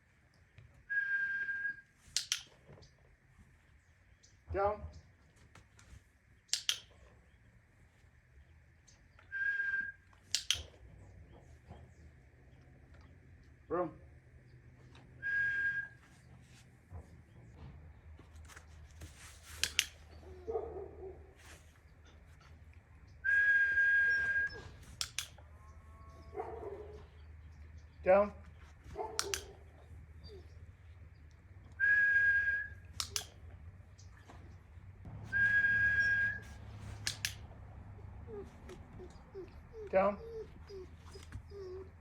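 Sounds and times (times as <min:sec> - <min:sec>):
sharp clicks: 0:02.1 - 0:02.6, 0:06.5 - 0:07.0, 0:10.2 - 0:10.8, 0:19.6 - 0:20.0, 0:24.9 - 0:25.4, 0:29.2 - 0:29.6, 0:32.9 - 0:33.6, 0:36.9 - 0:37.8
dog whistle long tone: 0:09.3 - 0:10.0, 0:15.2 - 0:16.0, 0:23.2 - 0:24.7, 0:31.8 - 0:33.2, 0:35.2 - 0:36.6
light handling rustles and ticks: 0:16.0 - 0:23.2, 0:26.4 - 0:31.8, 0:36.5 - 0:42.0.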